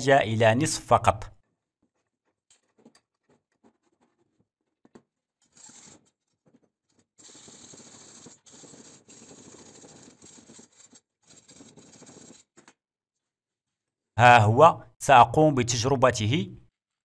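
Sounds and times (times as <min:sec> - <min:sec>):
rasping scrape cutting tube: 0:05.4 - 0:06.2, 0:07.0 - 0:12.7.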